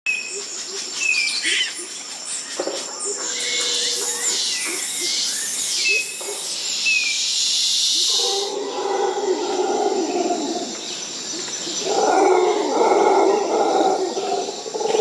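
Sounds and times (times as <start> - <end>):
insects hissing: 0.1 - 15.0
low animal calls: 8.0 - 10.8, 11.7 - 15.0.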